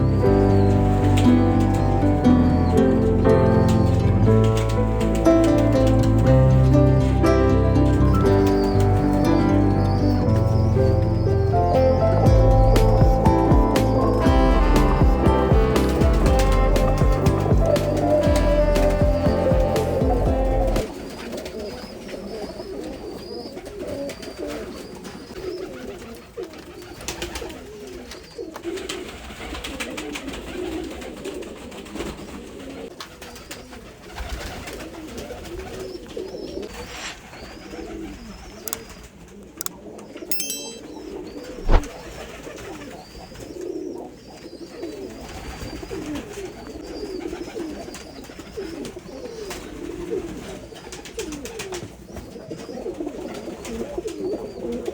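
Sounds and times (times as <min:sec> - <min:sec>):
pigeons cooing: 0:00.0 - 0:06.2, 0:08.2 - 0:54.9
sharp knock: 0:41.6 - 0:41.9.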